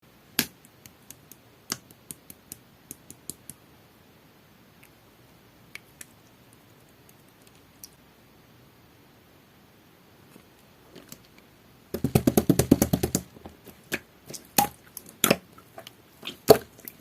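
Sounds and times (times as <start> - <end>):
slime clicking and popping: 13.9 - 15.5.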